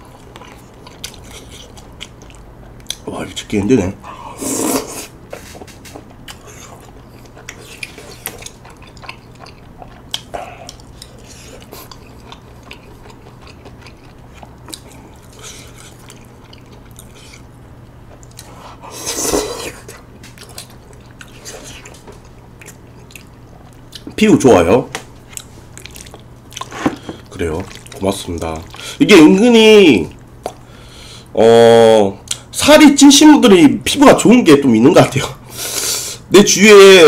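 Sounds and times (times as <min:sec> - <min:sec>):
wet chewing mouth sounds: 0:00.0 - 0:03.0, 0:04.6 - 0:24.2, 0:25.2 - 0:29.0
steady low hum: 0:00.0 - 0:36.6.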